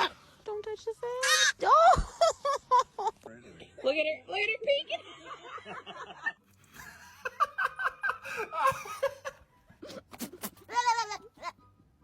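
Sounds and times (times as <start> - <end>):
young goat bleating: 1.2 - 1.6, 10.5 - 11.6
woman laughing: 5.4 - 10.0.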